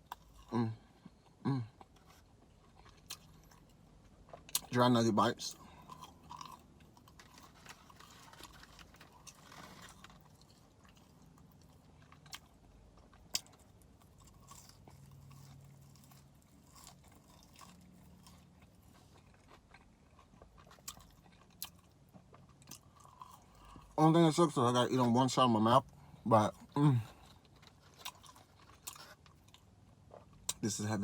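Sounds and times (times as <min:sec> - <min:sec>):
chewing and crunching food: 0:00.0 - 0:31.0.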